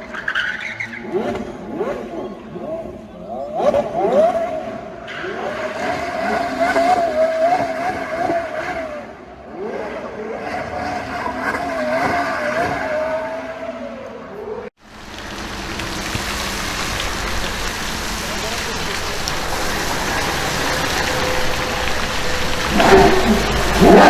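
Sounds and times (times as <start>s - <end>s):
sports car engine revving: 14.9s - 24.0s.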